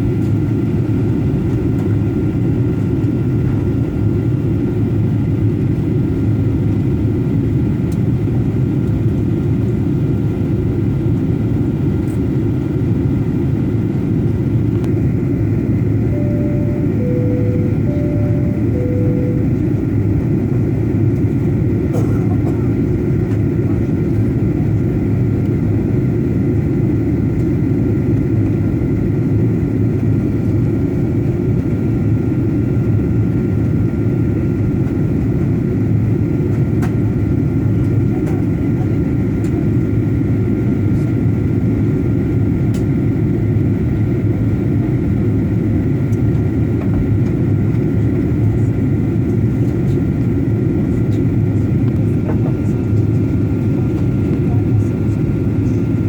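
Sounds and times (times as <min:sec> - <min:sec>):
jet engine cabin rumble: 0:00.0 - 0:56.0
faint steady high tones: 0:16.0 - 0:20.2.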